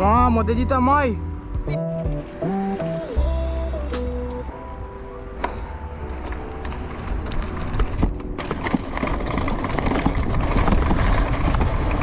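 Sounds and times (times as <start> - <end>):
bicycle rattling over bumps: 6.2 - 12.0
wind buffeting microphone: 7.2 - 12.0.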